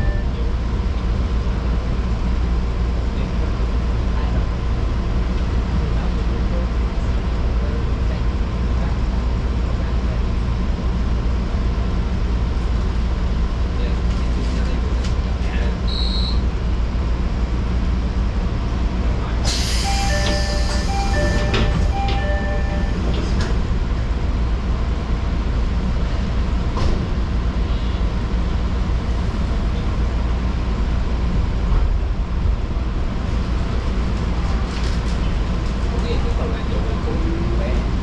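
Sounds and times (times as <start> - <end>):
train rumbling: 0.0 - 38.0
two-note electronic tone: 19.9 - 23.0.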